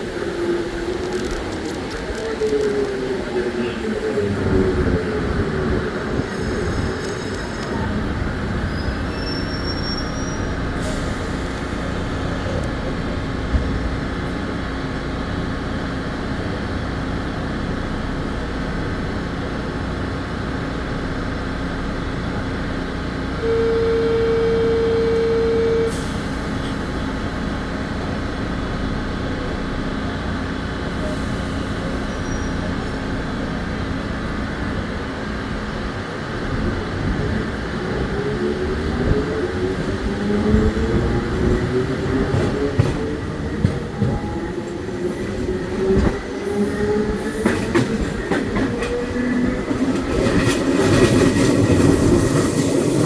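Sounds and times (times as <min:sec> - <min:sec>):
steady single-pitch tone: 0:23.4 - 0:26.0.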